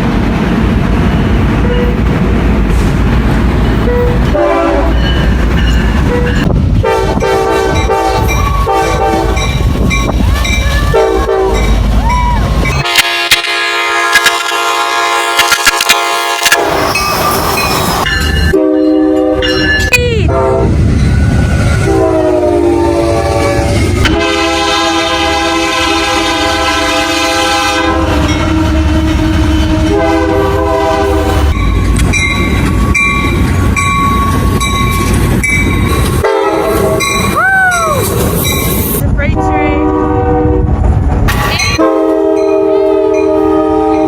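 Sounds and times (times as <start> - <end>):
rumble of passing trains: 0.0 - 44.0
locomotive air horns blowing: 3.8 - 5.1, 6.0 - 9.6, 10.4 - 11.7, 12.7 - 17.3, 18.5 - 19.6, 20.2 - 20.8, 21.8 - 31.6, 36.2 - 37.3, 39.3 - 40.7, 41.3 - 44.0.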